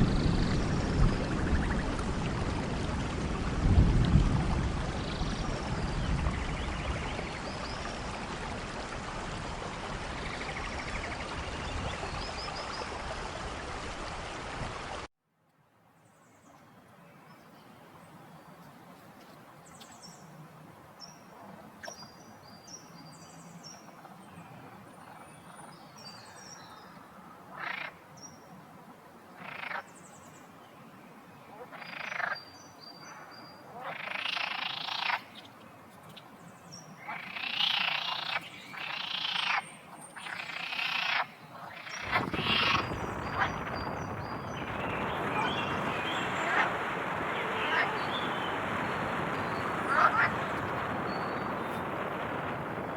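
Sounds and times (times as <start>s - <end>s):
steady rushing noise: 0.0s - 15.1s, 41.8s - 52.9s
frogs croaking: 24.8s - 28.3s, 29.4s - 30.0s, 31.5s - 35.6s, 36.9s - 52.9s
small birds chirping: 31.8s - 52.0s.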